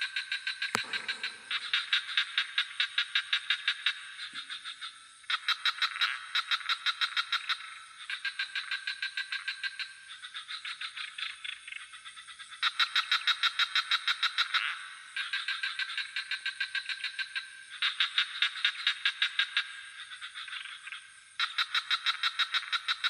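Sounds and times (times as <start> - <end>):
frogs calling in pulsed trills: 0.0 - 23.0
insect chorus: 0.0 - 23.0.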